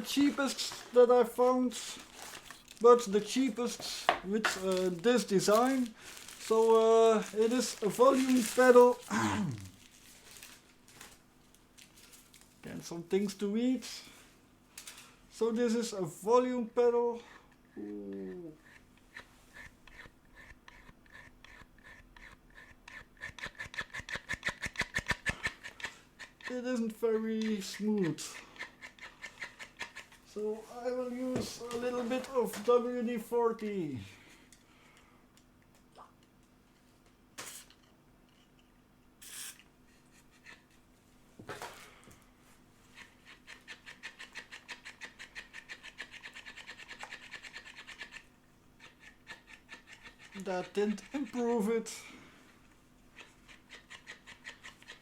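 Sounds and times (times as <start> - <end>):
spray can hissing: 39.2 - 39.6.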